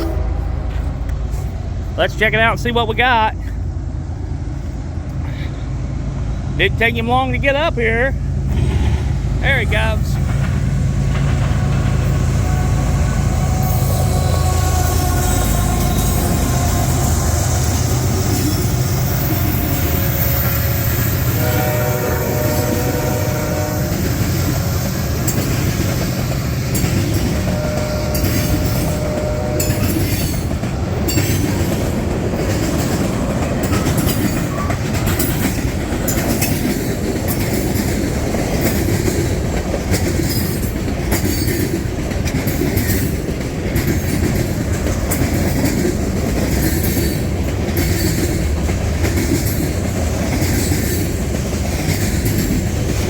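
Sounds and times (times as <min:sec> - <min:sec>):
locomotive horn: 0:00.0 - 0:01.5, 0:11.2 - 0:24.7, 0:26.9 - 0:30.5
train rumbling past: 0:00.0 - 0:53.0
wheels clicking over rail joints: 0:06.8 - 0:53.0.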